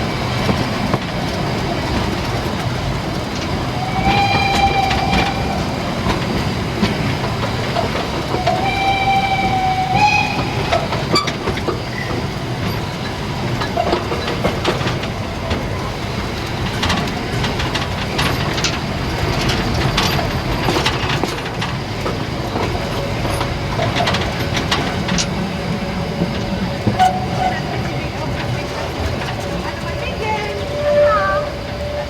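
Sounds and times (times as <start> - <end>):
steam train wheels rumbling: 0.0 - 32.0
clicks over rail joints: 10.7 - 30.0.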